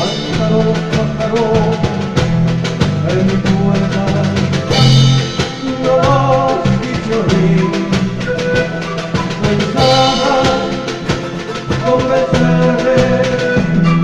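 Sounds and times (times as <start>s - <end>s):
folk band playing: 0.0s - 14.0s
steady drum beat: 0.0s - 14.0s
bright cymbal crash: 4.7s - 6.3s.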